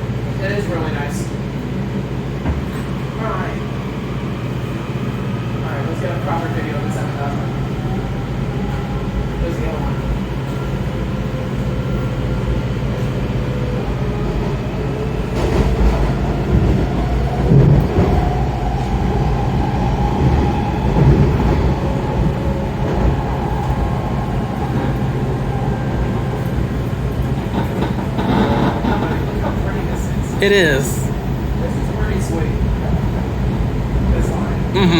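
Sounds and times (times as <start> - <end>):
train rumbling on track: 0.0 - 34.9
train knocks: 2.4 - 3.0, 26.4 - 31.1.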